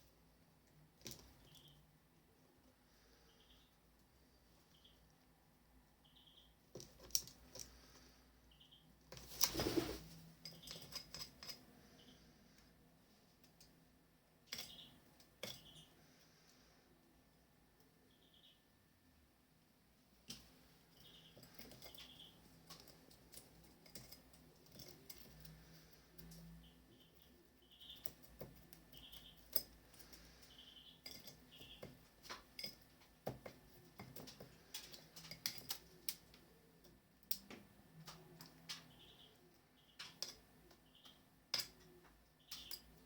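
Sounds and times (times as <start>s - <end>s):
birds chirping: 17.9s - 18.7s, 20.8s - 23.0s, 24.9s - 32.3s, 38.0s - 43.0s
light clicks and taps: 31.1s - 39.0s.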